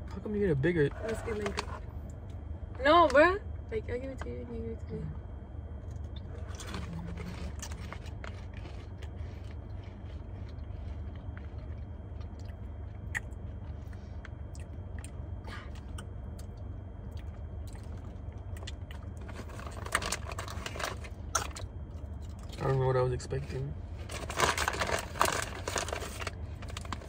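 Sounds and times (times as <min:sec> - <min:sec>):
steady low hum: 0:00.0 - 0:27.0
people chewing potato chips: 0:05.8 - 0:22.8, 0:24.0 - 0:27.0.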